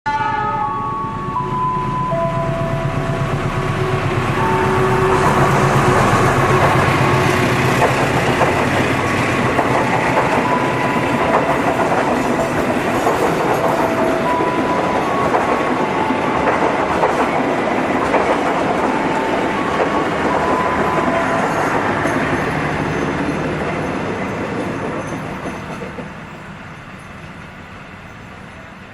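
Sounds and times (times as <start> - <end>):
low engine drone: 0.2 - 12.4
train coaches clacking over rails: 0.2 - 28.9.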